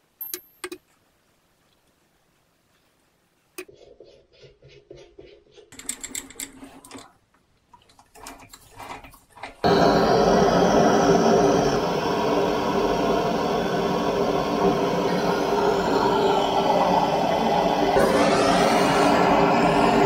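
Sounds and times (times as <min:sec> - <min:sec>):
gas torch hissing: 0:09.6 - 0:20.0.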